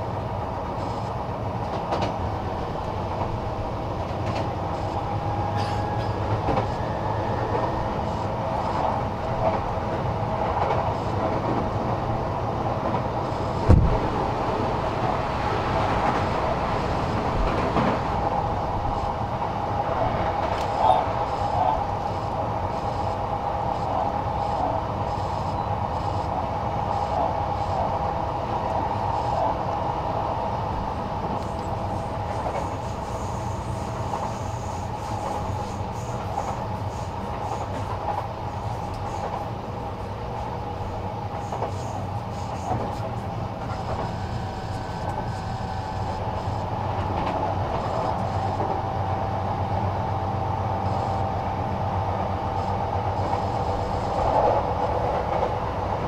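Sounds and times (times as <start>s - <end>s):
constant train hum: 0.0s - 56.0s
train wheels rumbling on rail: 0.0s - 56.0s.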